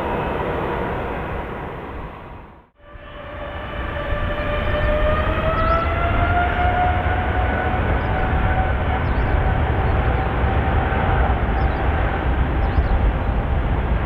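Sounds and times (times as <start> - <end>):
jet engines rumbling and whining: 0.0 - 14.0.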